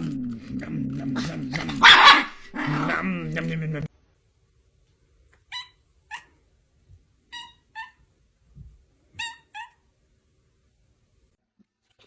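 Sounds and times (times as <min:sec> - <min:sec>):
small animal high-pitched cries: 0:07.3 - 0:08.0.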